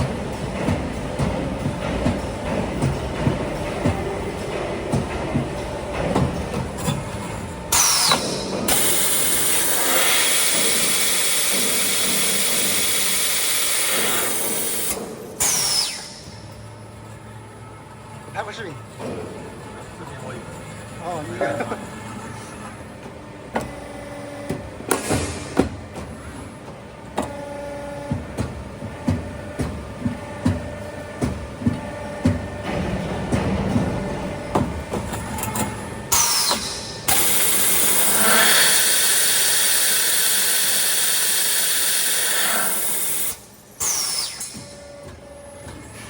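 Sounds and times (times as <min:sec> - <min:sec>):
machine steady hiss: 0:36.2 - 0:44.4.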